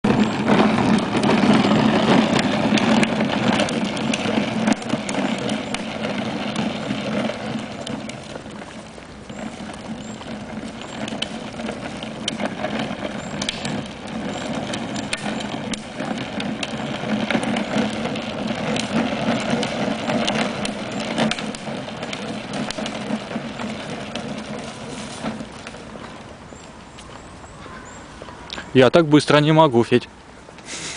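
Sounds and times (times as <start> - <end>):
small motorcycle engine running: 0.0 - 27.0.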